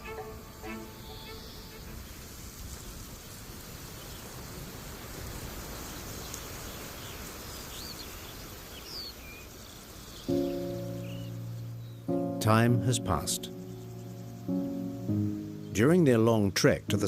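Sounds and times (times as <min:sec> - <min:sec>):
sustained musical chord: 0:00.0 - 0:01.6, 0:10.3 - 0:17.0
steady background hiss: 0:00.0 - 0:17.0.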